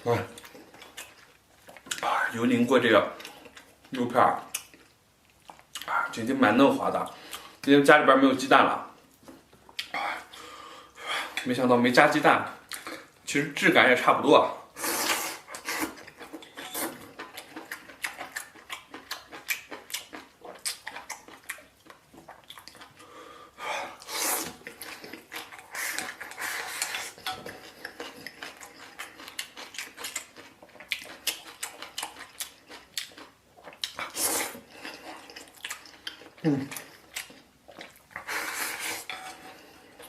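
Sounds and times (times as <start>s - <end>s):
chewing: 0.3s - 2.2s, 3.0s - 6.2s, 15.0s - 23.2s, 23.9s - 40.0s.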